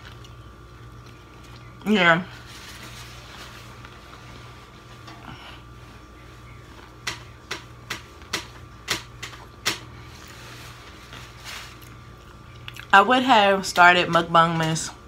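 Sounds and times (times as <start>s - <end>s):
person chewing crunchy food: 0.0s - 1.8s, 11.7s - 12.9s.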